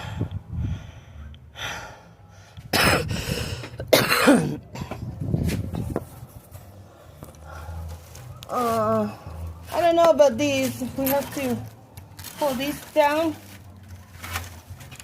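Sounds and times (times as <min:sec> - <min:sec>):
person coughing: 0:02.8 - 0:03.1, 0:03.8 - 0:04.6.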